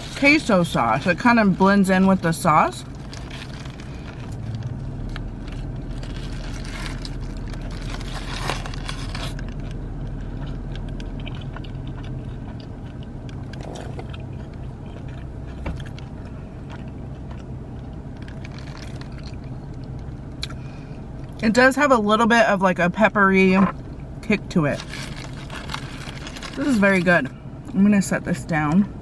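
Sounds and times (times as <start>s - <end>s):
foil wrapper crinkling: 0.0s - 11.5s, 18.1s - 20.1s, 24.6s - 27.1s
low hum inside car: 0.0s - 29.0s
person chewing: 2.8s - 21.4s.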